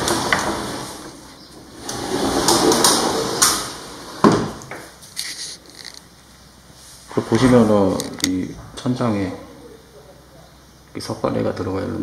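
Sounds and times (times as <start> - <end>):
sliding doors rolling on tracks: 0.0 - 6.0.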